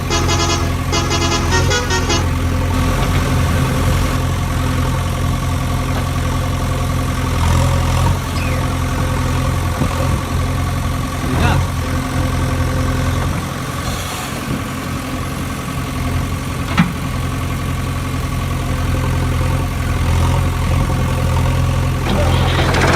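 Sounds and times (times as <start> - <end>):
fast pulsing horn-like tone: 0.0 - 2.3
vehicle engine idling: 0.0 - 22.9.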